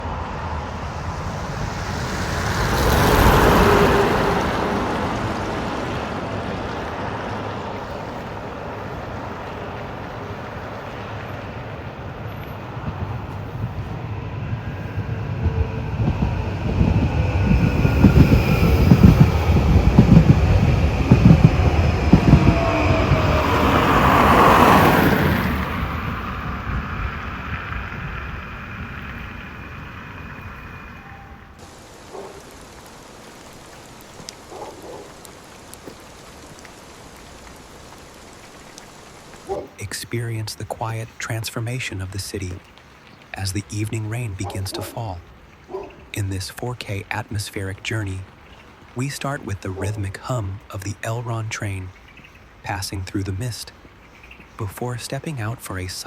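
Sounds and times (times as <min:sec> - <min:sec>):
train rumbling on rails: 0:00.0 - 0:50.8
train wheels thumping: 0:12.5 - 0:26.5.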